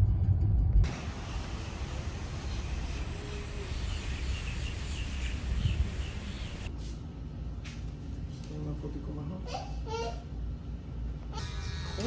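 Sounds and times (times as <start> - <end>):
low rumble: 0.0 - 6.7.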